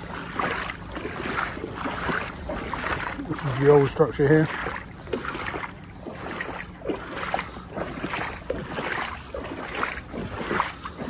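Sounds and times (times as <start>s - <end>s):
legs wading through water: 0.0s - 11.0s.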